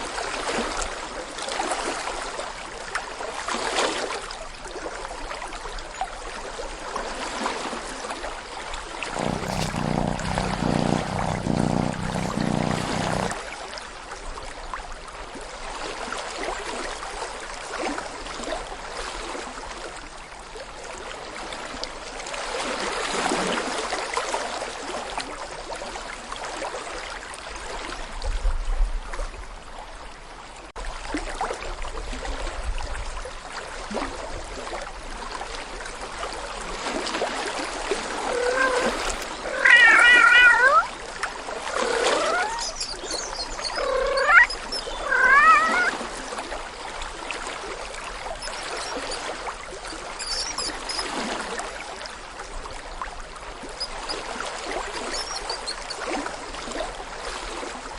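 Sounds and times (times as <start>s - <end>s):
cat meowing: 9.2s - 13.4s, 38.3s - 40.9s, 41.8s - 46.0s
watery rushing noise: 37.6s - 48.9s.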